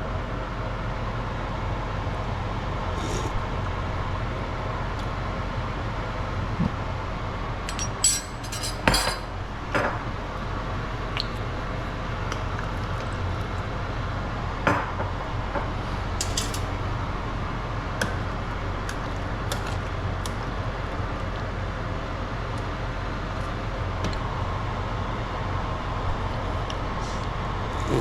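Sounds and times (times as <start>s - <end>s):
low background hum: 0.0s - 28.0s
utensils clinking against dishes: 7.7s - 9.3s, 16.2s - 16.7s.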